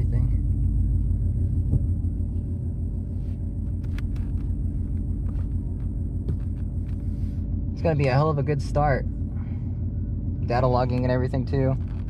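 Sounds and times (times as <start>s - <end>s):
car engine idling rumble: 0.0s - 12.0s.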